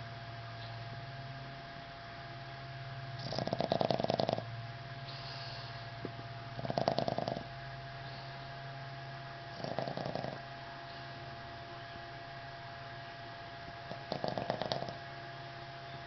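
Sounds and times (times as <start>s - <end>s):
dog breathing softly: 3.2s - 4.4s, 5.0s - 5.9s, 6.6s - 8.5s, 9.5s - 11.3s, 13.9s - 15.0s
dog snoring: 3.2s - 4.5s, 6.5s - 7.5s, 9.5s - 11.2s, 13.8s - 15.0s.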